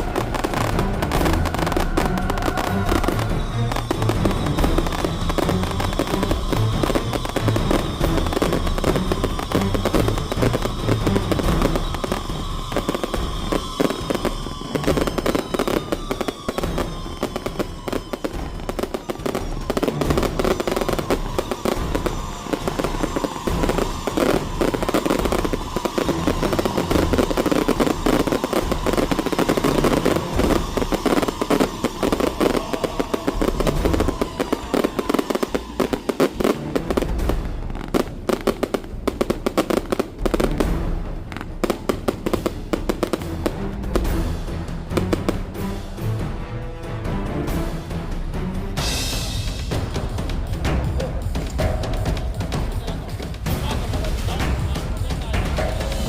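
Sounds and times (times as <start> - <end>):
firework whistling: 0.0 - 46.0, 48.8 - 56.0
firecrackers and fireworks banging: 0.0 - 56.0.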